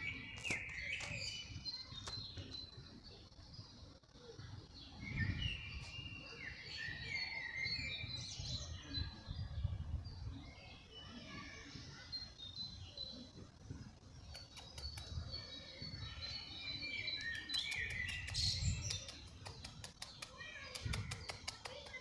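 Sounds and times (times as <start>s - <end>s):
songbirds chirping and singing: 0.0s - 22.0s
quick clicks: 14.3s - 15.2s, 17.2s - 22.0s.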